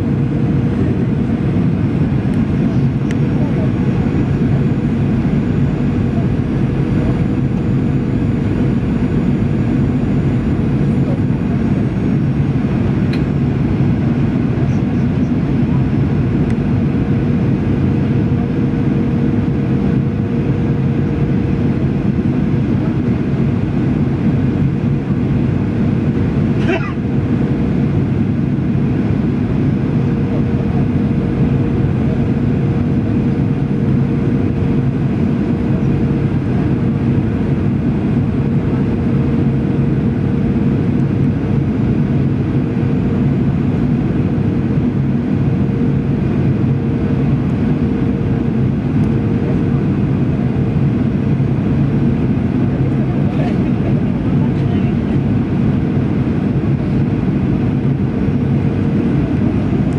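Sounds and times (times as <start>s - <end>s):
constant hum tone: 0.0s - 59.9s
jet engine and airflow roar: 0.0s - 59.9s.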